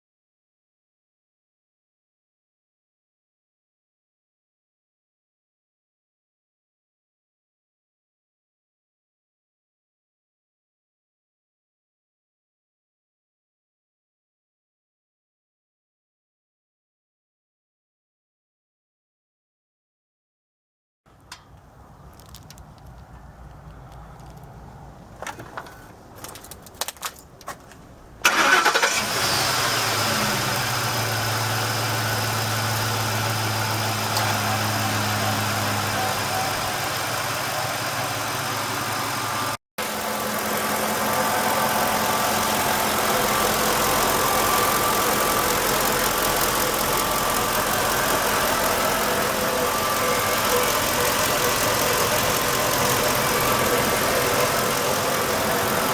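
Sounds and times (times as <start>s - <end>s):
engine starting and idling: 28.1s - 55.9s.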